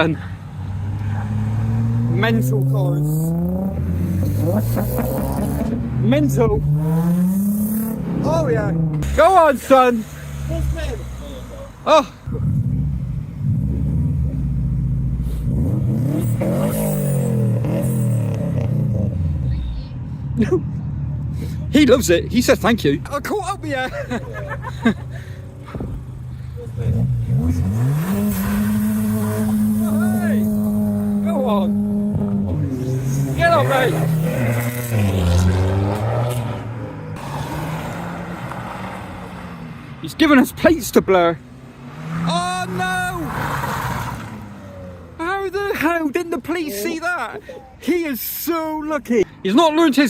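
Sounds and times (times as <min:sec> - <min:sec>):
loud car engine revving: 0:00.0 - 0:19.6, 0:25.7 - 0:45.3.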